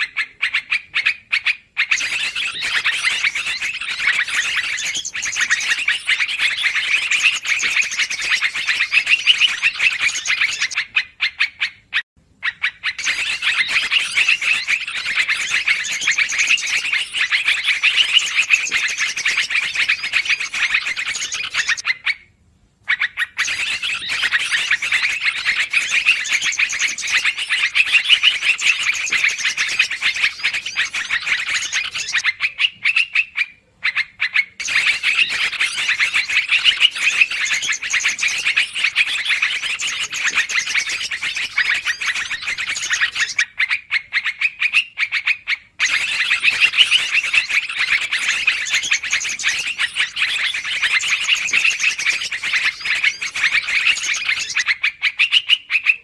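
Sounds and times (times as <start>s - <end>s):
bulbuls chattering: 1.9s - 10.9s, 13.0s - 21.8s, 34.6s - 43.4s.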